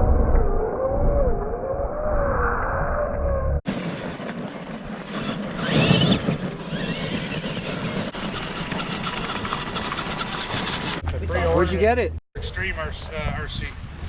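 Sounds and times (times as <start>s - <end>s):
outdoor noise: 0.0s - 14.0s
toy truck electric motor whining: 5.1s - 11.0s.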